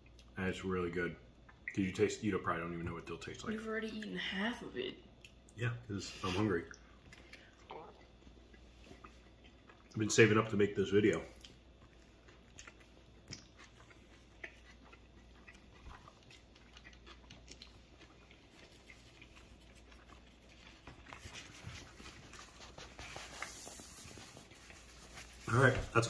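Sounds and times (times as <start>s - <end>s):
person chewing: 6.6s - 10.0s, 11.2s - 25.5s
paper napkin rustling: 20.8s - 26.0s.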